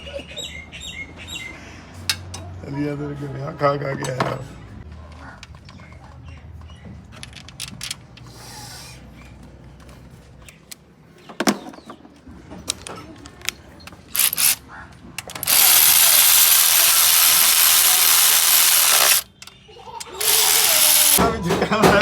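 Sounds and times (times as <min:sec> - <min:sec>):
metallic tool clicks and clinks: 0:12.7 - 0:14.6.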